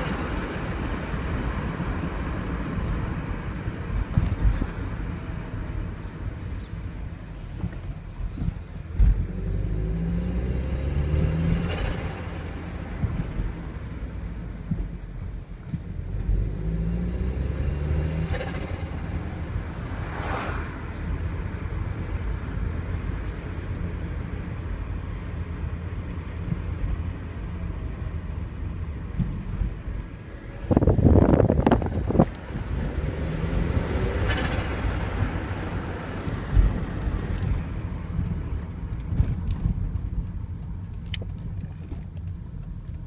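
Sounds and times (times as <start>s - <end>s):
car engine revving: 9.0s - 14.9s, 15.8s - 23.9s, 29.4s - 42.5s.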